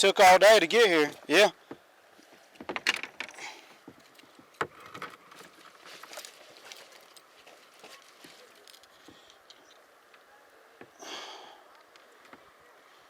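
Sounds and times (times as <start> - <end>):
fishing gear knocking and clicking: 2.6 - 3.4.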